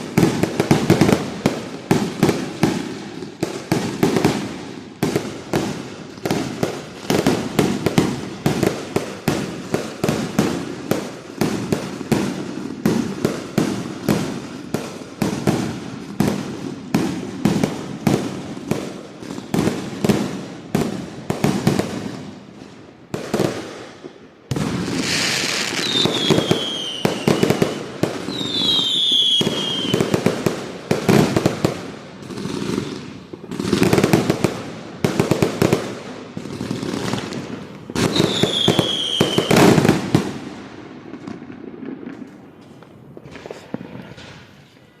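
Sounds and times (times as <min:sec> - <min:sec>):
falling firework whistles: 0:23.9 - 0:30.2, 0:38.0 - 0:40.2, 0:42.3 - 0:45.0
firework hiss: 0:24.6 - 0:30.7, 0:42.2 - 0:45.0.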